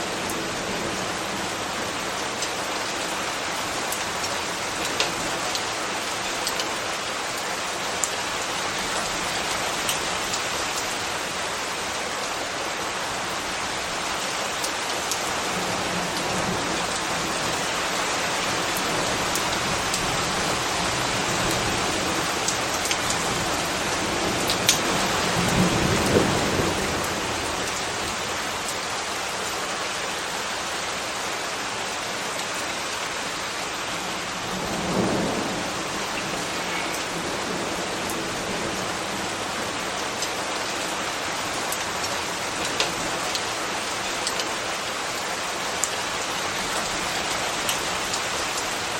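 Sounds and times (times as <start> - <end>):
steady rain: 0.0 - 48.9.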